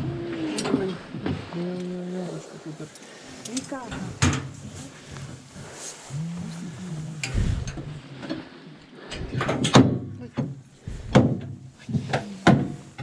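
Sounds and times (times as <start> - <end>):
low murmuring voices: 0.0 - 9.4.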